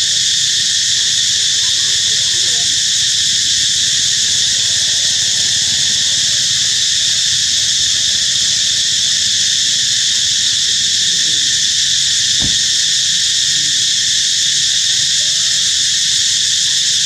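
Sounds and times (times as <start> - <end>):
insect chorus shrilling: 0.0 - 17.0
short knock: 12.4 - 12.8.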